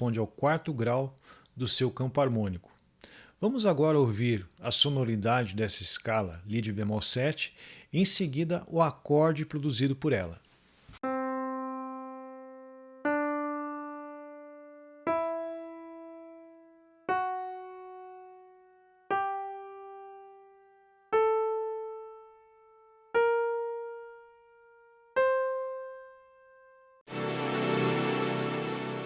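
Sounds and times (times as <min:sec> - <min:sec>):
piano chord: 0:11.0 - 0:29.0
piano notes ascending scale: 0:11.0 - 0:29.0.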